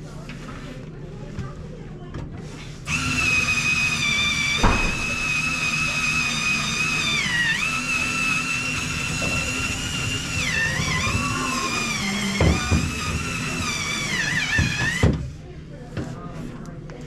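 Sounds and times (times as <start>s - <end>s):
small motor whining: 2.9s - 15.2s.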